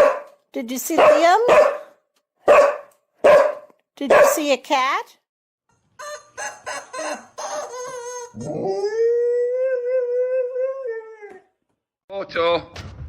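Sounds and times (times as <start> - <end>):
dog yelping: 1.0 - 1.9, 2.5 - 4.4, 6.5 - 8.9
dog howling: 7.5 - 11.5.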